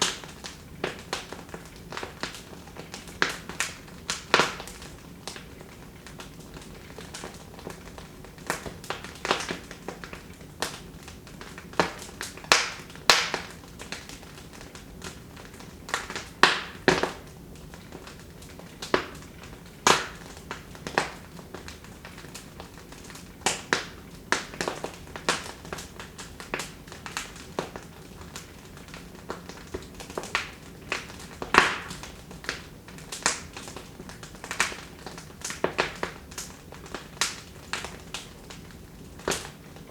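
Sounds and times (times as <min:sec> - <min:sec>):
wood fire pops and snaps: 0:00.0 - 0:39.9.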